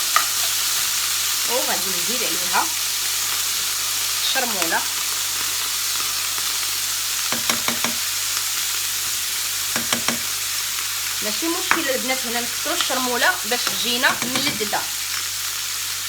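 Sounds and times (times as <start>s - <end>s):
food sizzling in a frying pan: 0.0s - 16.0s
utensil knocking on pan: 7.3s - 8.1s, 9.7s - 10.4s, 11.7s - 11.9s, 13.6s - 14.8s.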